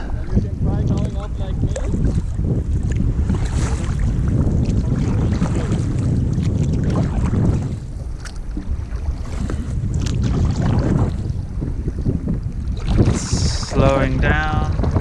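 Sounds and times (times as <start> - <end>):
wind buffeting microphone: 0.0 - 15.0
paddle splashes in water: 1.7 - 13.9, 14.5 - 15.0.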